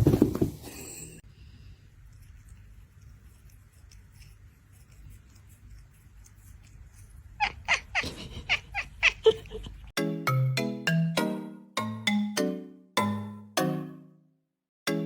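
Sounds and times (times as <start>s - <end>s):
cat calling: 7.3s - 9.7s.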